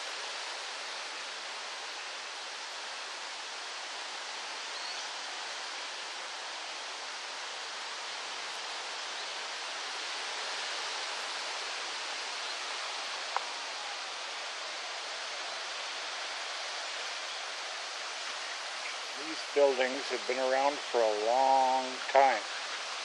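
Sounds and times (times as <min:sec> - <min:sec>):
breeze rustling trees: 0:00.0 - 0:23.0.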